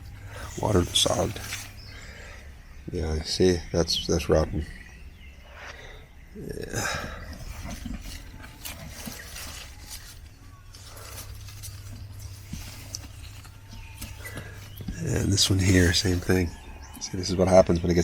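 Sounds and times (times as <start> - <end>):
rustling of plants being handled: 0.0 - 2.3, 6.3 - 18.0.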